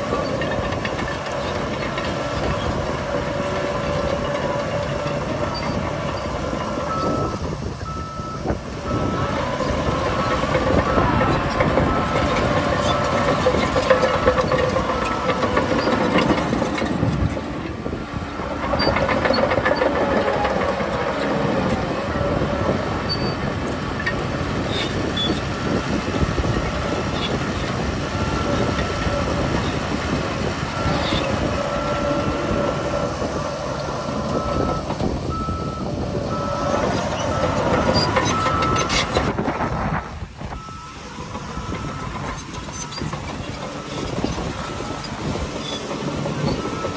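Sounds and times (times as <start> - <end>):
bulldozer diesel engine under load: 0.0 - 46.9
track clatter and clanking: 0.0 - 46.9
reversing alarm beeping: 2.4 - 17.6, 28.2 - 39.5, 40.5 - 46.9.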